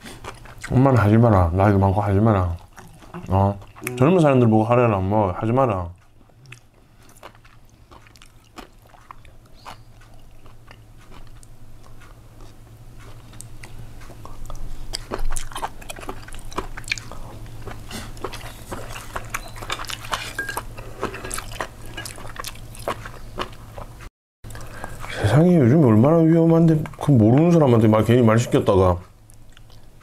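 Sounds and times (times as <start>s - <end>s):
chewing and biting food: 0.0s - 1.1s, 1.9s - 4.0s, 6.0s - 25.2s, 26.7s - 30.0s
steady low hum: 0.0s - 30.0s
crackly mouth clicks: 2.5s - 4.0s, 6.0s - 20.3s, 29.0s - 29.9s.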